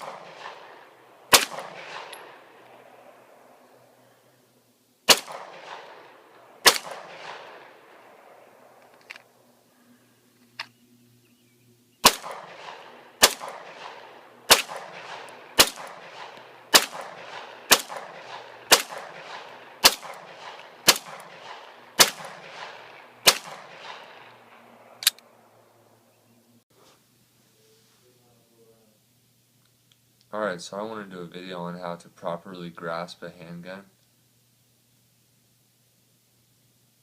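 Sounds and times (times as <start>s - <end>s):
handgun shots echoing: 0.0s - 3.3s, 5.1s - 9.2s, 12.0s - 25.3s.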